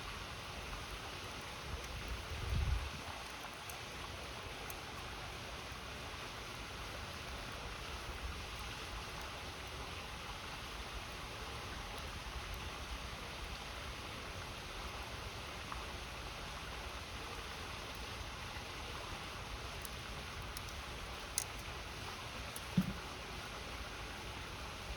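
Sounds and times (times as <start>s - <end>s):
river water flowing: 0.0s - 24.9s
campfire wood popping: 17.4s - 23.6s.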